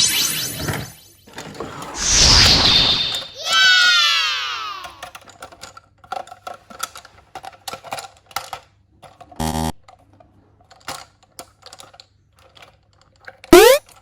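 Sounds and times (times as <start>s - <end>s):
plastic toy pieces clicking: 4.7s - 14.0s.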